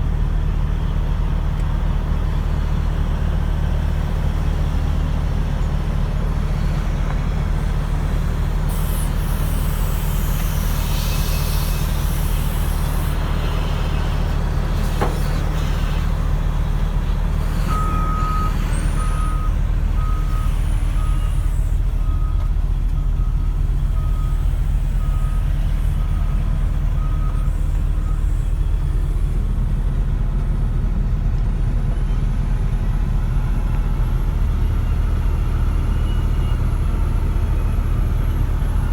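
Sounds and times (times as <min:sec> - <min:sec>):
heavy machinery diesel engine: 0:00.0 - 0:38.9
reversing alarm beeping: 0:17.4 - 0:28.4.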